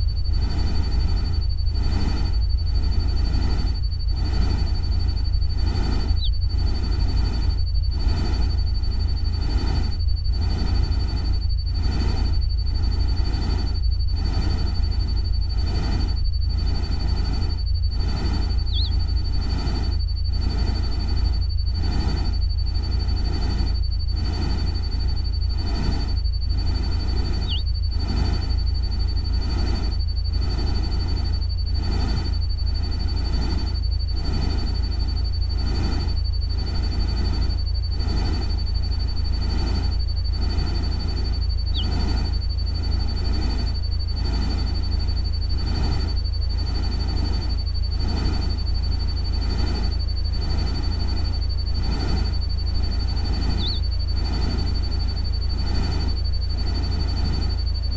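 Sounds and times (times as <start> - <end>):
electronic low rumble: 0.0 - 57.9
soft electronic pulse: 0.0 - 57.9
thin high tone: 18.5 - 19.1, 27.3 - 27.6, 53.4 - 53.9
short chirps: 18.6 - 19.1, 27.4 - 27.7, 53.5 - 53.9.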